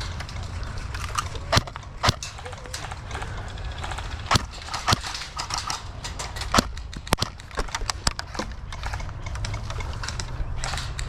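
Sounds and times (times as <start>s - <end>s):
faint clicks and ticks: 0.0s - 11.0s
airsoft gunfire snaps: 1.5s - 2.2s.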